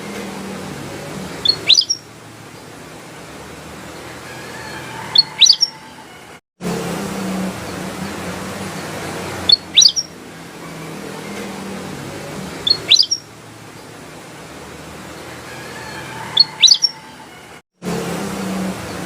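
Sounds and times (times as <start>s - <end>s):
background noise with low hum: 0.0s - 19.0s
bird whistling phrases: 1.4s - 2.0s, 5.0s - 5.9s, 9.4s - 10.2s, 12.6s - 13.3s, 16.2s - 17.2s.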